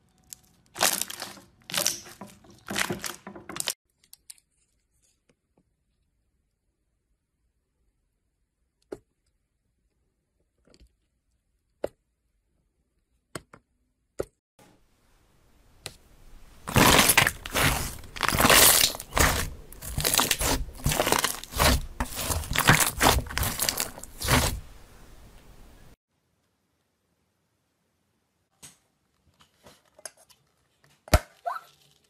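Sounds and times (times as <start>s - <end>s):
slime crackling and popping: 16.6s - 24.8s.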